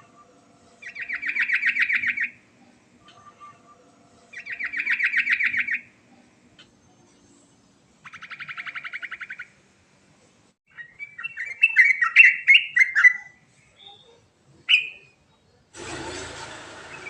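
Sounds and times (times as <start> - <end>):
bulbul singing: 0.0 - 6.8
harsh noisy burst: 15.8 - 17.0.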